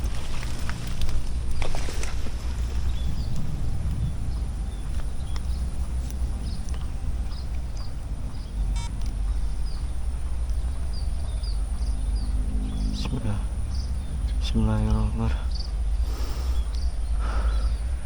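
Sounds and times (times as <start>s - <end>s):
small birds chirping: 0.0s - 18.0s
wind rumble on microphone: 0.0s - 18.0s
buzzy click: 8.7s - 9.2s.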